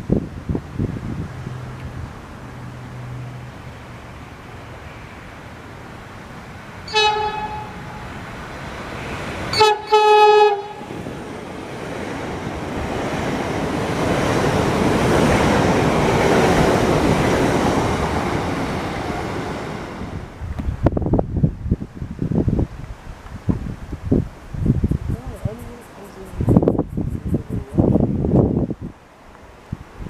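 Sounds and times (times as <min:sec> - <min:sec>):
train passing rumble: 0:00.0 - 0:30.0
train horn blasts: 0:06.9 - 0:08.1, 0:09.5 - 0:10.9.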